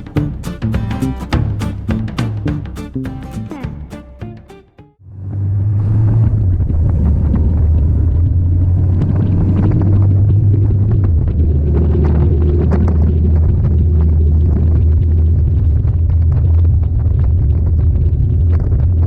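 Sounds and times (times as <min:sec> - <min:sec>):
car engine rumbling: 0:05.1 - 0:19.0.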